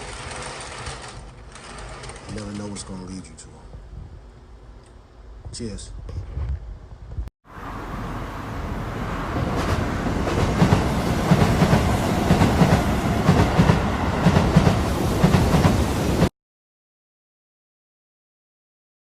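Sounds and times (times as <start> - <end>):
train wheels clattering on rails: 9.4 - 15.8.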